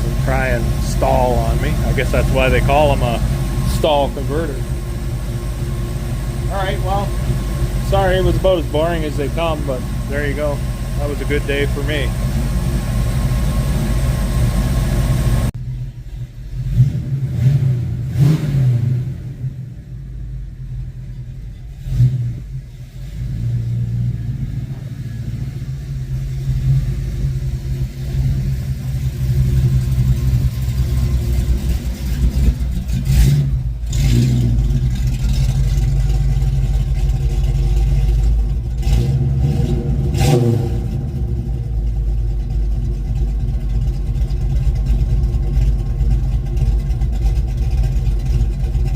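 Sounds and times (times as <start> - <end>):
engine knocks: 0.0 - 16.4, 20.8 - 48.9
car engine revving while driving: 16.6 - 19.6, 21.8 - 27.5, 32.3 - 35.9, 38.7 - 41.8.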